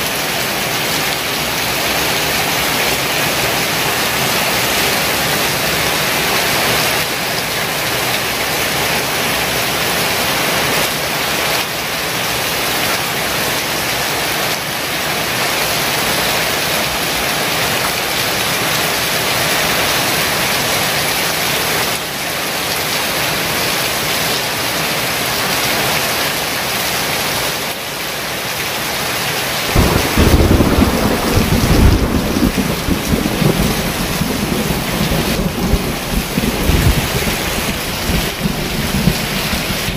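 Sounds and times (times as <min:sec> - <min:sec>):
heavy rain pouring: 0:00.0 - 0:39.9
low thunder rumble: 0:29.7 - 0:39.9.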